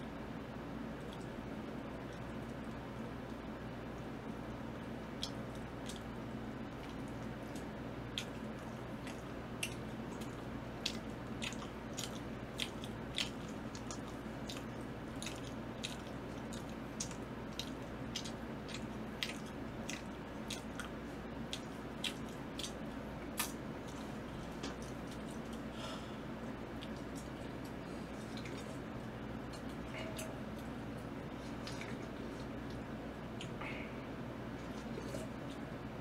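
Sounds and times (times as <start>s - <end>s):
steady low hum: 0.0s - 36.0s
mouth clicks and smacks: 5.2s - 6.1s, 6.7s - 25.7s, 26.8s - 33.7s
person chewing: 5.2s - 35.8s.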